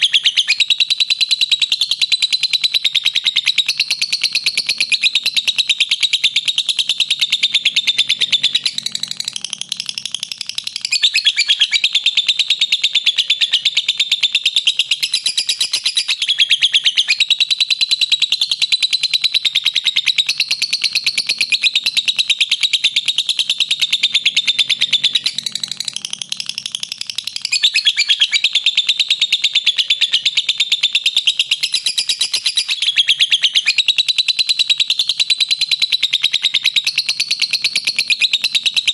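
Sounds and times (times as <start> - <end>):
lovebird shrill chatter: 7.2 - 13.8, 14.6 - 17.3, 24.1 - 28.9, 31.3 - 33.8.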